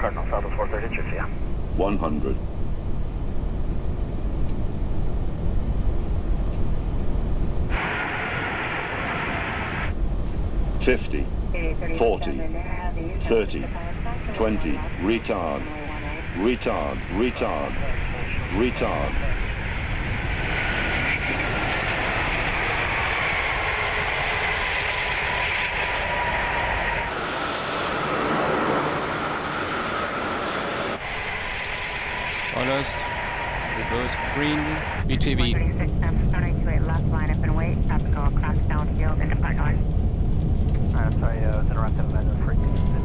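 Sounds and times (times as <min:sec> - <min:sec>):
cockpit airflow and engine rumble: 0:00.0 - 0:43.0
faint steady whine: 0:00.0 - 0:43.0
rushing air: 0:06.9 - 0:10.8, 0:19.1 - 0:35.1.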